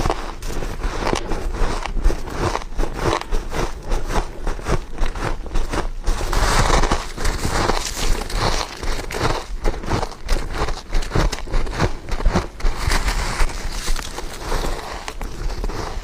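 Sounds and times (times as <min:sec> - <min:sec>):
crunching frozen frost: 0:00.0 - 0:16.0.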